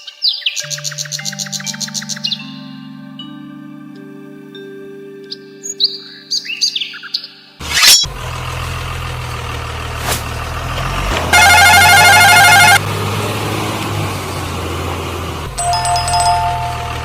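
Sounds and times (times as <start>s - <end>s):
heavy vehicle engine humming: 7.6s - 17.0s
steady beeping tones: 11.3s - 12.8s
warbling electronic tone: 11.3s - 12.8s.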